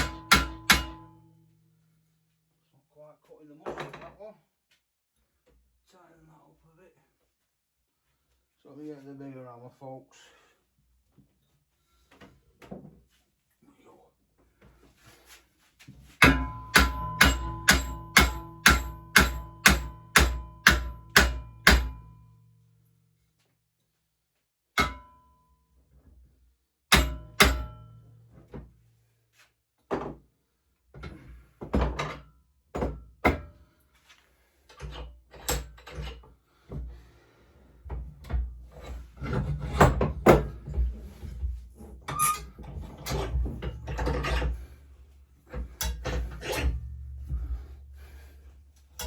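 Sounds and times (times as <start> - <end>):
metallic knocks and clatter: 0.0 - 1.2, 16.2 - 22.1, 38.2 - 44.8, 45.5 - 49.0
hammer striking steel: 0.0 - 1.3, 16.2 - 22.3, 24.8 - 25.3, 26.9 - 28.1.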